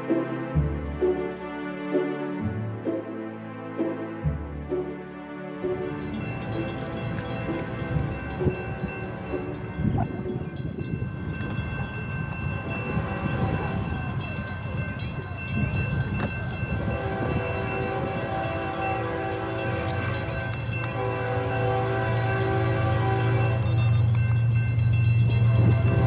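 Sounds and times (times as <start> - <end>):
locomotive engine rumble: 5.6 - 26.0
locomotive horn blast: 16.4 - 24.3, 25.3 - 26.0.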